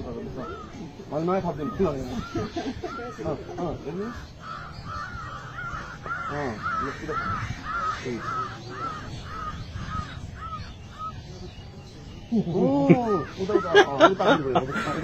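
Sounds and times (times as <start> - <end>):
faint voices: 0.0 - 15.0.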